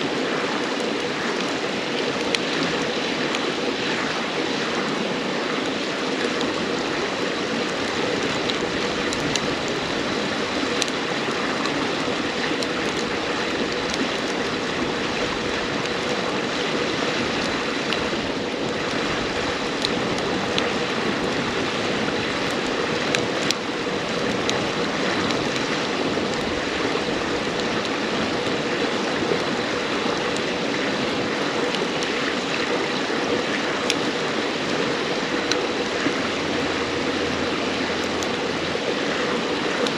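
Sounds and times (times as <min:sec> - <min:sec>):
campfire crackling and popping: 0:00.0 - 0:39.9
river babbling: 0:00.0 - 0:39.9.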